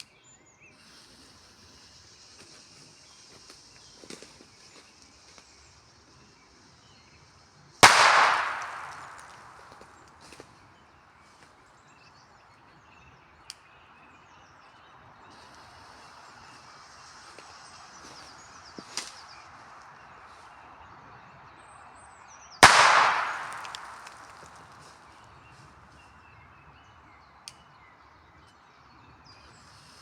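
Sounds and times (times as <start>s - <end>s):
birds singing faintly: 0.0s - 30.0s
firecracker bang: 7.8s - 9.8s, 22.6s - 24.5s.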